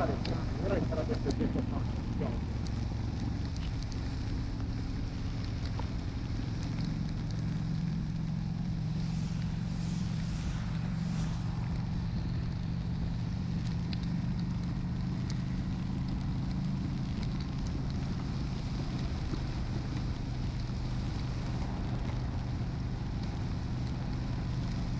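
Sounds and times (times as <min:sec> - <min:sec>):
motorcycle engine running: 0:00.0 - 0:24.9
raindrops ticking on lens: 0:00.0 - 0:24.9
hiss: 0:07.9 - 0:14.3.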